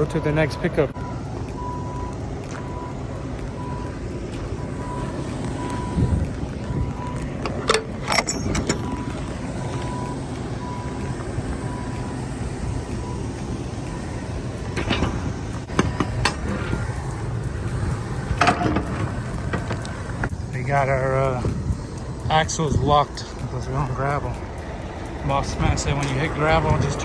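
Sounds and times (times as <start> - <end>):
reversing alarm beeping: 0.0 - 19.8
diesel engine running: 0.0 - 27.0.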